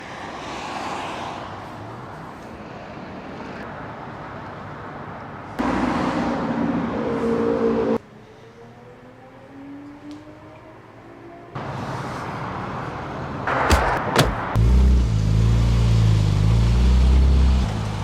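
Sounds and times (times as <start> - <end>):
car and road noise: 0.0 - 18.0
loud car engine: 13.5 - 18.0.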